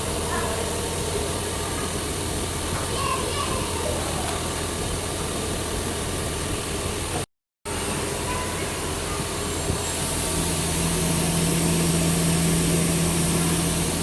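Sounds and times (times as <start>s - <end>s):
machining equipment humming and hissing: 0.0s - 14.0s
faint voices: 0.2s - 4.7s.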